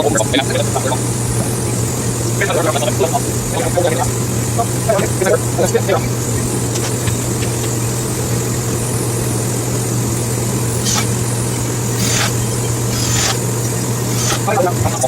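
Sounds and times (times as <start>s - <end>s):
mechanical hum with rushing: 0.0s - 15.0s
short hissing bursts: 6.0s - 14.7s.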